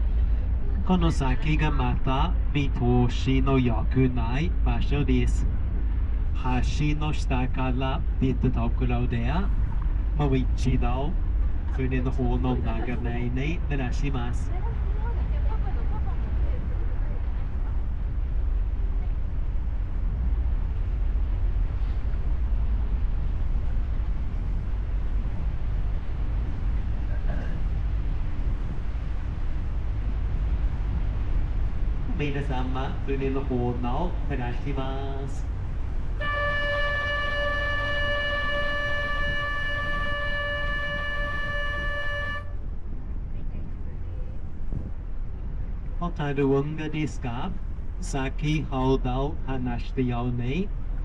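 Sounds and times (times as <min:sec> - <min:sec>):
boat engine rumbling: 0:00.0 - 0:51.0
wind on microphone: 0:35.2 - 0:46.0
horn long steady note: 0:35.6 - 0:42.8.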